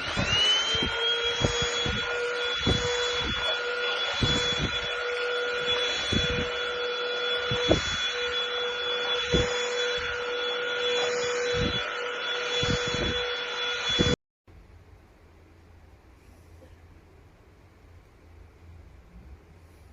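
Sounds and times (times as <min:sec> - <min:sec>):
vacuum cleaner running: 0:00.0 - 0:14.2.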